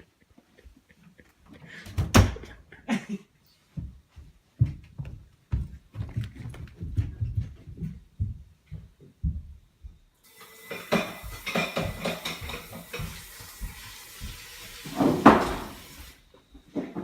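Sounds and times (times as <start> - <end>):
dull low thumps: 4.6 - 10.0
dishes and cutlery clattering: 10.6 - 13.3.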